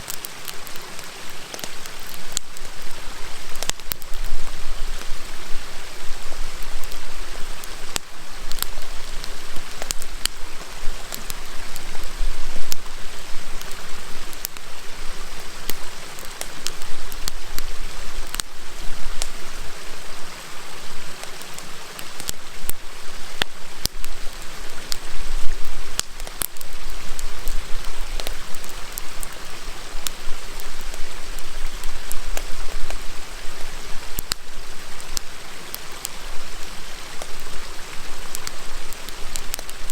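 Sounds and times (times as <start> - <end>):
river rushing: 0.0 - 39.9
wood fire crackling: 0.0 - 39.9.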